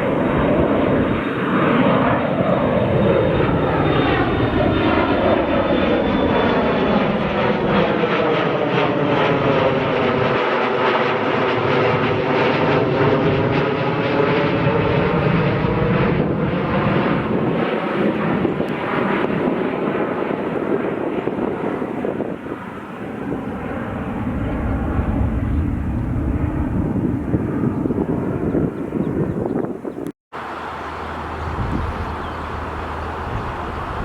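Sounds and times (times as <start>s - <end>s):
airliner passing overhead: 0.0s - 34.0s.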